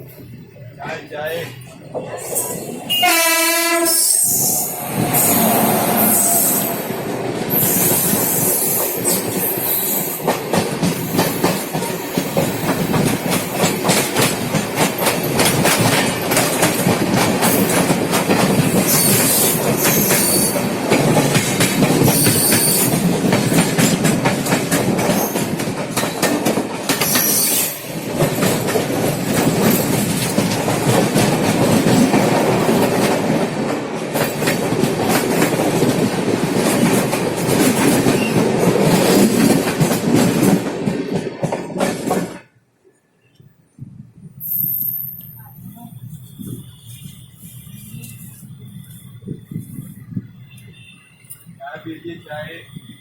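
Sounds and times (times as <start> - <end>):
train rumbling: 0.0 - 53.0.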